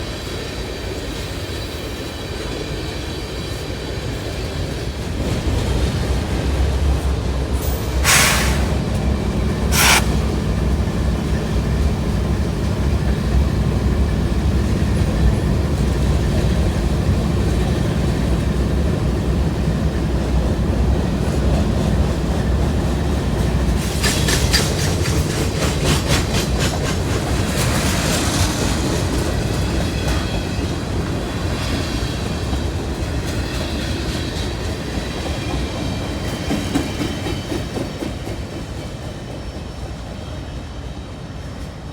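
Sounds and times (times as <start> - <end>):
freight train rumbling past: 0.0 - 41.9
wheels clacking over rail joints: 6.2 - 30.2.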